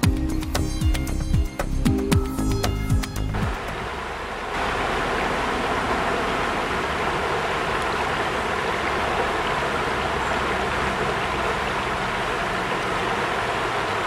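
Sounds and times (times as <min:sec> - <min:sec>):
fast water rushing: 0:03.4 - 0:14.0.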